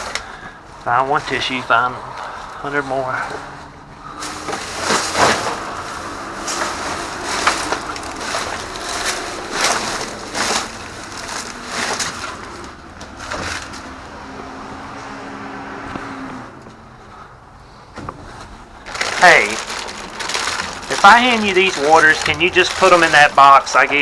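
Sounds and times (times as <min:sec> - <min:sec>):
plastic wrap crinkling: 0:00.0 - 0:00.2, 0:04.2 - 0:13.9, 0:18.8 - 0:24.0
items knocking: 0:04.2 - 0:13.9, 0:18.9 - 0:24.0.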